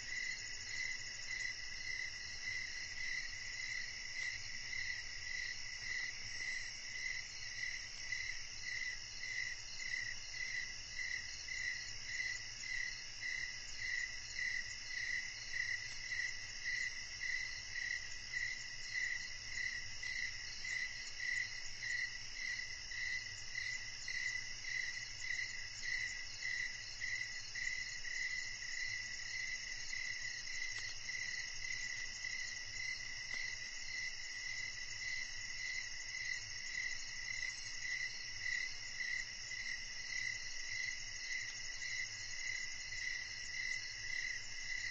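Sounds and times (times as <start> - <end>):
low pulsing cricket chirp: 0.0 - 44.9
crickets trilling: 8.6 - 44.9.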